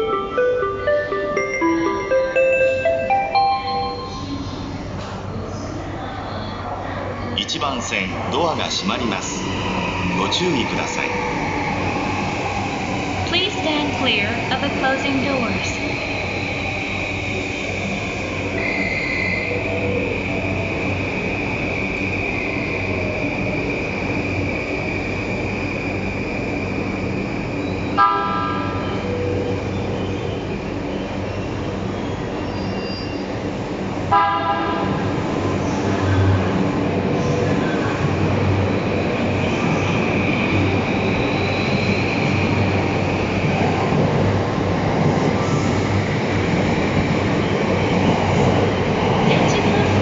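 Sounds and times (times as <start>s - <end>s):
electric train humming: 0.0s - 6.8s, 7.4s - 50.0s
train horn toot: 28.0s - 28.9s, 34.1s - 35.0s.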